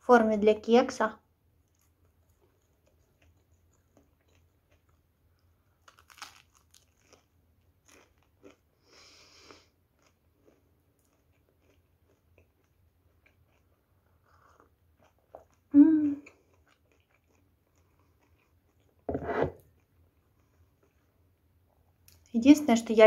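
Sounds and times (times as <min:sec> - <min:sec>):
biting and chewing bread: 0:01.6 - 0:08.7, 0:09.7 - 0:21.3
crisp crunches: 0:05.8 - 0:08.6.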